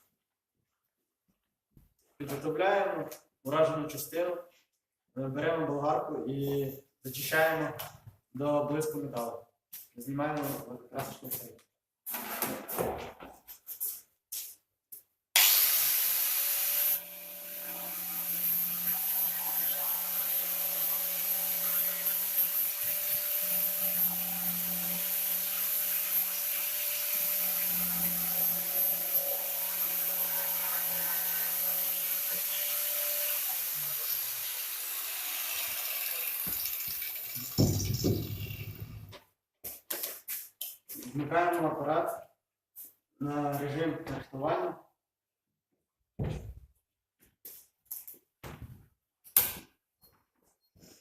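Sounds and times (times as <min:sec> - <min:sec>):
angle grinder grinding metal: 0:15.4 - 0:39.1.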